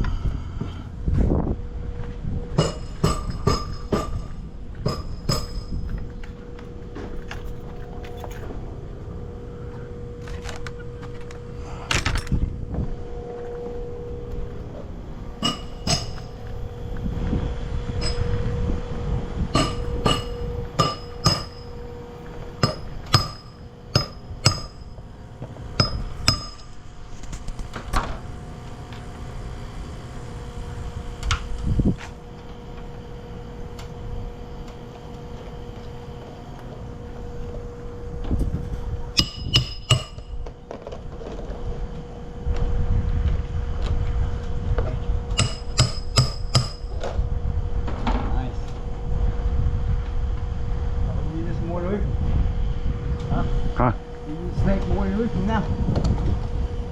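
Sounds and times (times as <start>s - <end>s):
hammer driving nails: 15.4s - 16.3s, 19.6s - 21.7s, 22.6s - 24.8s, 39.2s - 40.2s, 45.4s - 46.9s.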